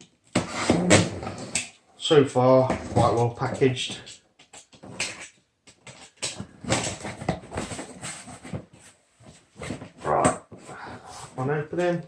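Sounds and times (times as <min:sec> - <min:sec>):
cardboard and plastic rustling: 0:05.8 - 0:12.0.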